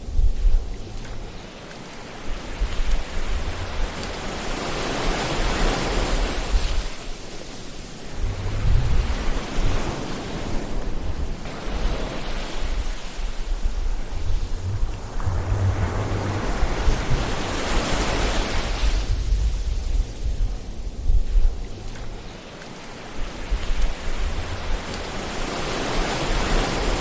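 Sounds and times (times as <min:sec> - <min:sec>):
ocean waves washing in: 0:00.0 - 0:27.0
deep surf rumble: 0:08.0 - 0:22.4.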